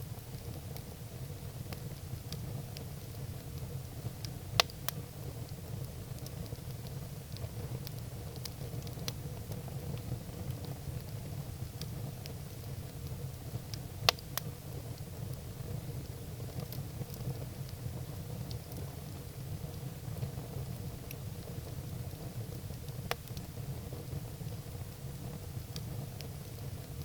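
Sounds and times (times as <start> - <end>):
firewood crackling: 0.1 - 27.0
sharp pops of fire: 4.1 - 6.9, 13.7 - 15.1.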